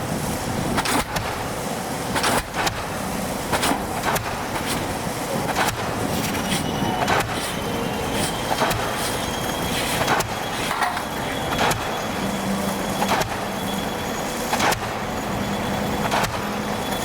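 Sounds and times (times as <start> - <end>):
machine running: 0.0 - 17.0
pile-driving hammer striking: 16.0 - 16.4.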